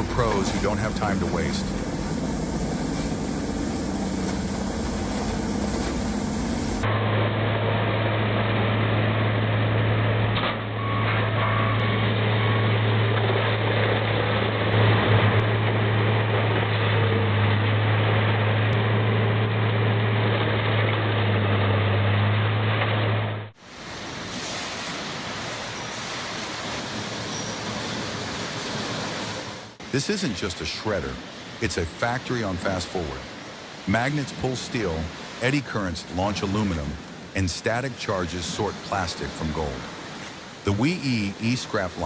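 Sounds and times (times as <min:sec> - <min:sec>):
deep engine hum: 0:00.0 - 0:10.4.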